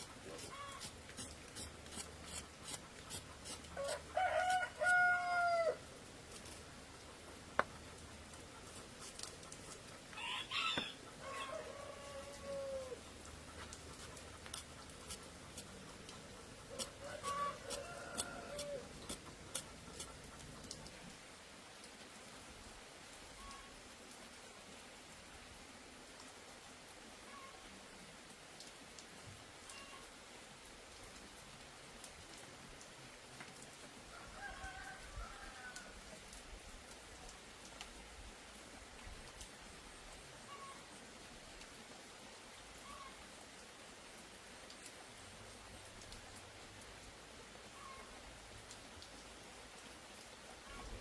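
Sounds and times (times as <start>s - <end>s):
rain hissing: 0.0s - 23.4s
faint animal call: 0.2s - 1.3s, 23.3s - 23.8s, 27.2s - 27.7s, 29.7s - 30.1s, 40.4s - 41.0s, 42.8s - 43.3s, 47.7s - 48.2s, 50.6s - 51.0s
rooster crowing: 3.8s - 5.8s, 10.2s - 13.0s, 16.8s - 18.8s, 34.1s - 36.0s.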